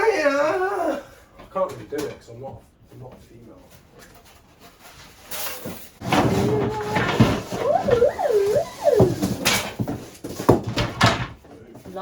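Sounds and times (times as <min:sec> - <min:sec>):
person wailing: 0:06.4 - 0:09.1.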